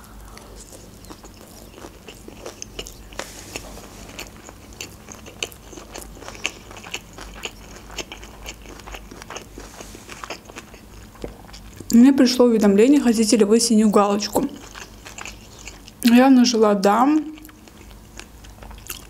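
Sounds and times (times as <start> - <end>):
person chewing food: 0.0 - 11.9, 14.5 - 16.1, 17.3 - 19.0.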